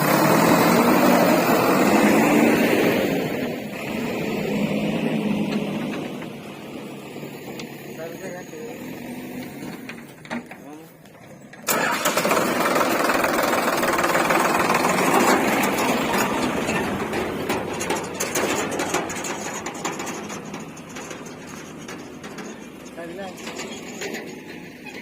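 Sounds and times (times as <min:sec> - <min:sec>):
heavy diesel engine clattering: 0:00.0 - 0:25.0.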